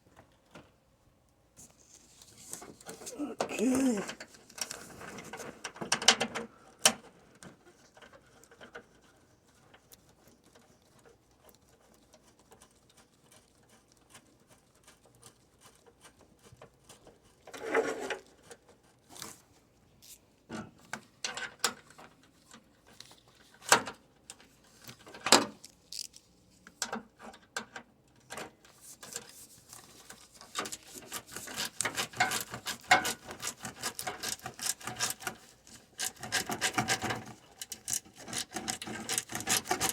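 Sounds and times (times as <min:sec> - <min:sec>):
hand tools clicking and knocking: 0:30.6 - 0:39.9.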